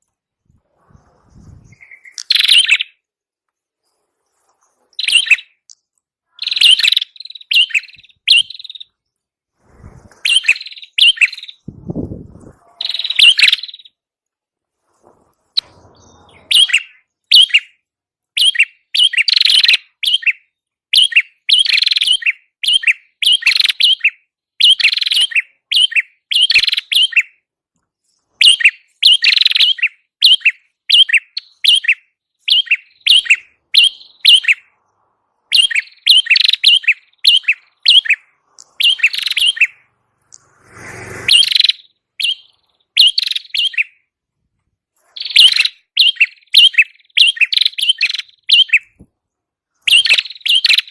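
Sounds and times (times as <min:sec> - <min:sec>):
bird chirping high and sharp: 0:00.8 - 0:03.1, 0:03.8 - 0:09.1, 0:10.2 - 0:12.0, 0:12.6 - 0:14.0, 0:15.6 - 0:17.8, 0:18.4 - 0:27.4, 0:28.1 - 0:44.1, 0:45.0 - 0:49.0, 0:49.8 - 0:50.9
low rustle: 0:03.6 - 0:05.0, 0:09.5 - 0:10.3, 0:14.4 - 0:16.5.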